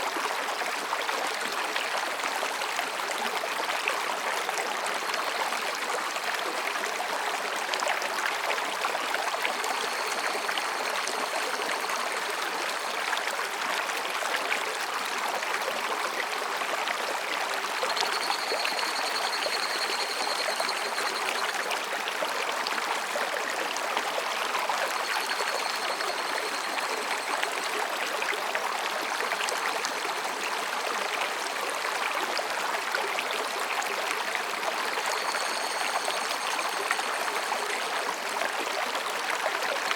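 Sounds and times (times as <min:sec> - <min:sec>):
stream babbling over rocks: 0:00.1 - 0:39.9
cicadas trilling: 0:09.3 - 0:12.9, 0:17.8 - 0:21.7, 0:24.9 - 0:28.0, 0:35.0 - 0:38.3.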